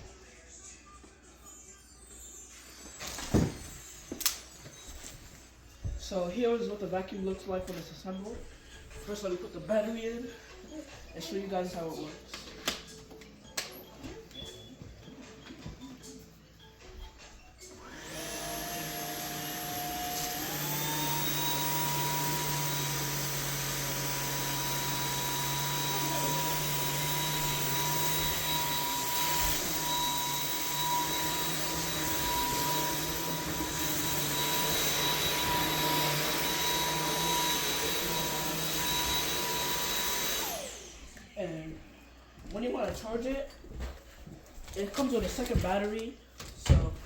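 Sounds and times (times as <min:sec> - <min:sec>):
cordless vacuum motor whine: 0:17.7 - 0:41.3.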